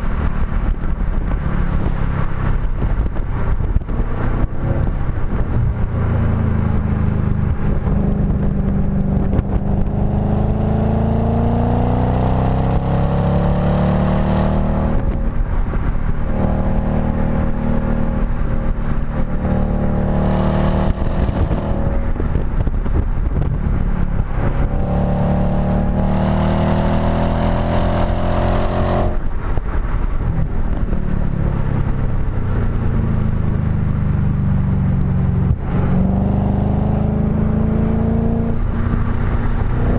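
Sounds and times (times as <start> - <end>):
car engine revving hard: 9.2 - 15.2, 19.2 - 22.3, 24.4 - 29.2, 35.5 - 39.0.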